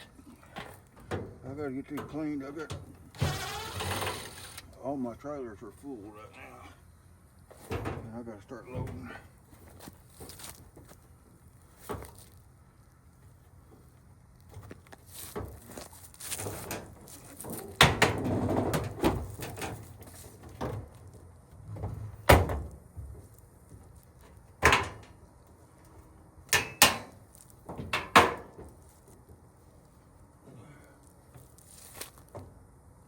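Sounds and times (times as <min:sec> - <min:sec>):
sheet metal clanks and knocks: 0:26.6 - 0:28.6.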